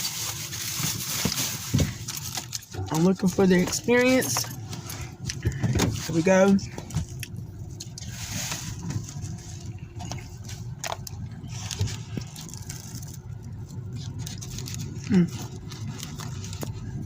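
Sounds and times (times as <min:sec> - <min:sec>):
car rumbling: 0:00.0 - 0:17.0
person chewing crunchy food: 0:06.8 - 0:17.0.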